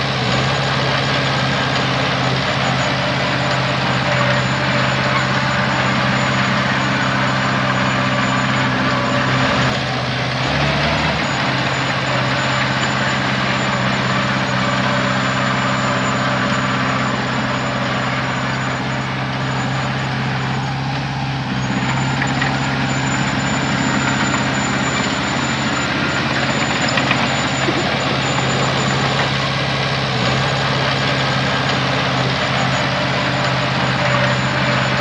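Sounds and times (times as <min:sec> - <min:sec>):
heavy diesel engine running: 0:00.0 - 0:35.0
thin high whine: 0:10.5 - 0:35.0.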